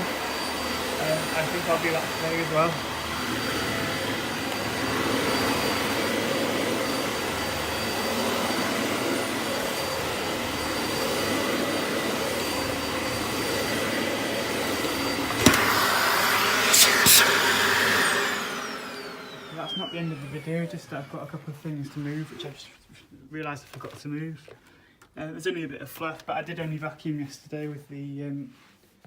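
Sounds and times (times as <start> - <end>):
upright vacuum running on carpet: 0.0 - 22.6.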